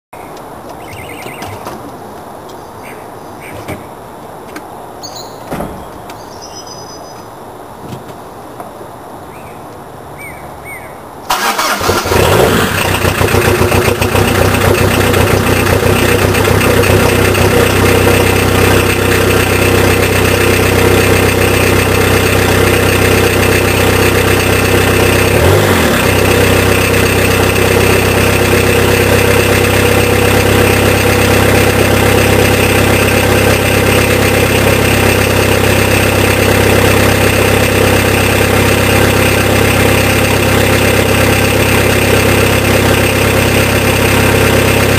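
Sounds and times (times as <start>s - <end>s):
diesel engine idling: 11.2s - 44.9s
diesel engine cranking and starting: 11.3s - 44.9s.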